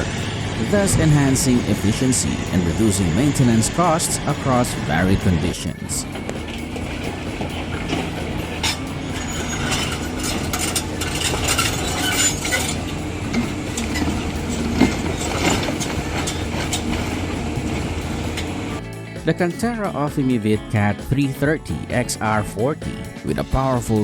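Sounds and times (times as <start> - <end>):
heavy machinery running: 0.0 - 19.0
metallic clanks and knocks: 6.0 - 18.8.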